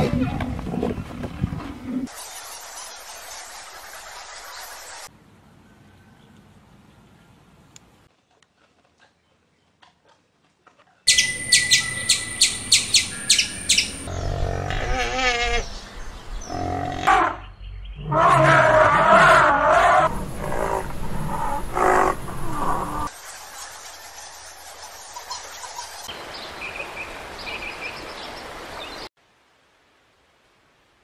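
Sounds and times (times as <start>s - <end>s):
outdoor ambience: 0.0s - 26.3s
animal chirps: 11.1s - 14.1s.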